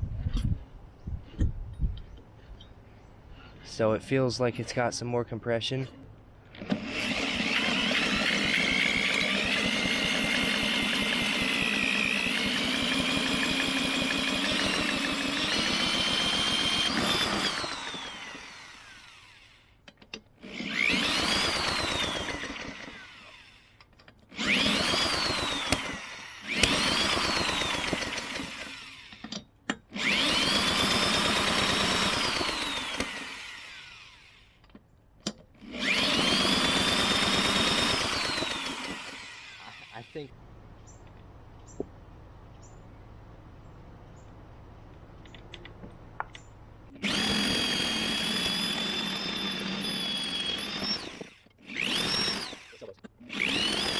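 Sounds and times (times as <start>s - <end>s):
lawnmower engine cranking: 6.5s - 19.2s, 19.8s - 40.1s, 46.9s - 53.9s.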